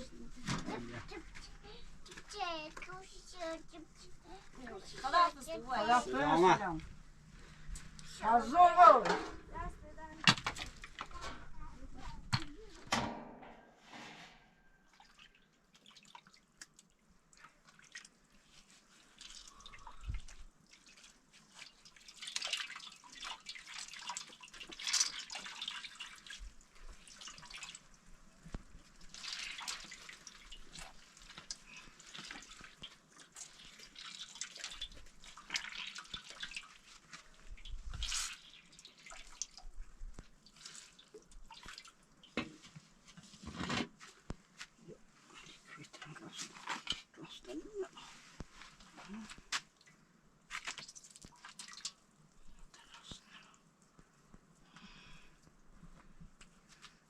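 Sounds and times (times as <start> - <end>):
water splashing and dripping: 10.2 - 11.2, 14.9 - 42.4, 48.3 - 56.9.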